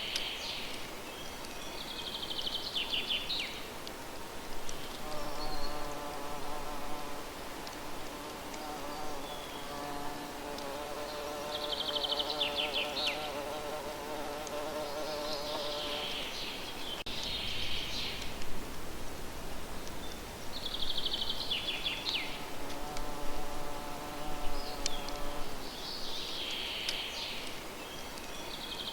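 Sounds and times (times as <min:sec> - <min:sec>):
insect buzzing: 0:04.8 - 0:16.6, 0:22.3 - 0:25.7.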